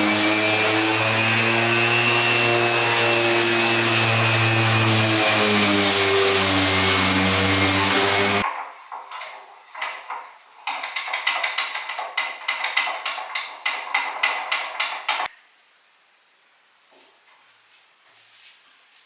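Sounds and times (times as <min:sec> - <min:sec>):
knocks: 0:07.6 - 0:15.3
rapid sharp taps: 0:08.4 - 0:15.3.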